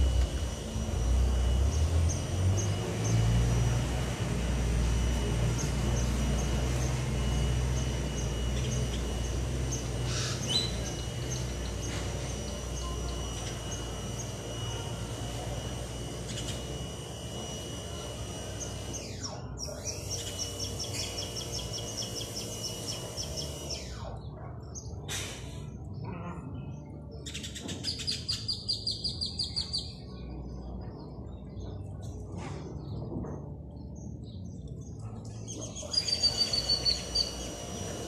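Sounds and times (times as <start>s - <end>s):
small birds chirping: 18.5s - 25.0s, 27.2s - 38.0s.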